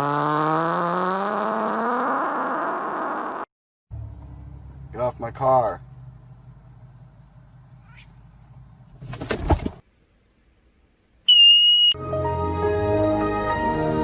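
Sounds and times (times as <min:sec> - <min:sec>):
high electronic beep: 0:11.3 - 0:12.0
music: 0:12.0 - 0:14.0.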